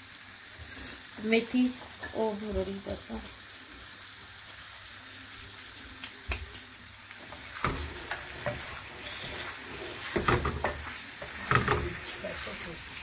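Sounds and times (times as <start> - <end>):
food sizzling in a metal pan: 0.0 - 13.0
wooden spoon scraping a pan: 7.2 - 13.0.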